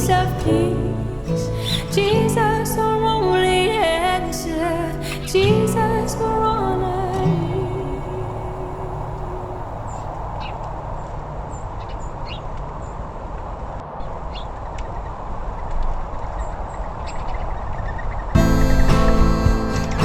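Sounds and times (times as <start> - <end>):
small birds chirping: 8.2 - 13.3
harmonica music: 18.4 - 20.0.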